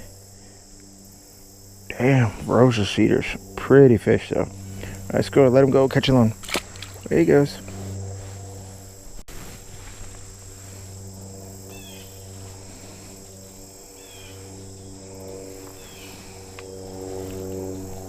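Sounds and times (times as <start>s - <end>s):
high insect drone: 0.0s - 18.0s
low steady hum: 0.0s - 18.0s
bird chirp: 11.7s - 12.4s, 14.0s - 16.5s.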